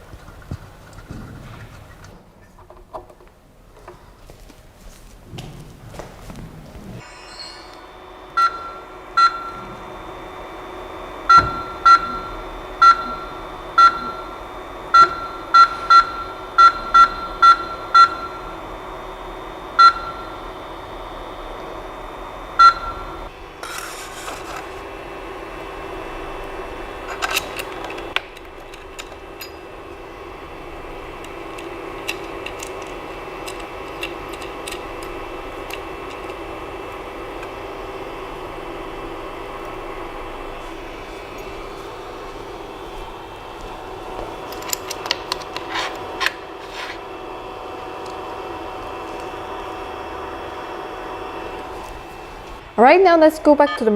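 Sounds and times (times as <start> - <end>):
machine mechanical hum: 0.0 - 53.9
touchscreen beeps: 11.3 - 14.3, 53.6 - 53.9.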